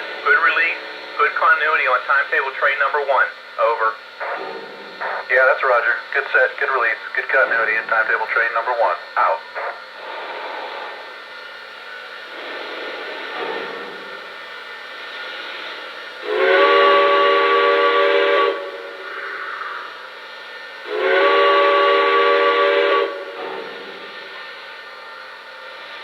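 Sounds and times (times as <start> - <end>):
steam hiss: 0.0 - 26.0
steam whistle blasts: 16.2 - 20.0, 20.8 - 24.4.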